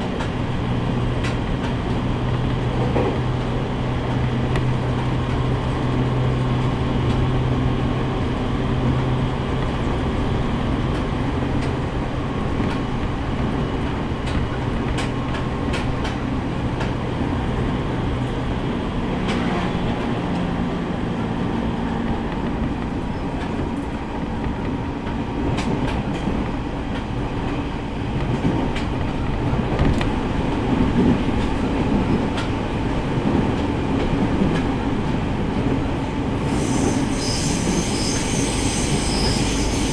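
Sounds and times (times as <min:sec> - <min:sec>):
wheels clicking over rail joints: 0:00.0 - 0:07.6, 0:08.7 - 0:18.5
train running noise: 0:00.0 - 0:39.9.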